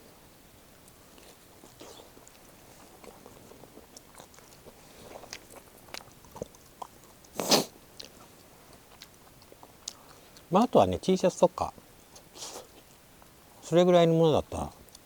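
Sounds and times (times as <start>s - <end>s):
person chewing food: 0.9s - 10.5s.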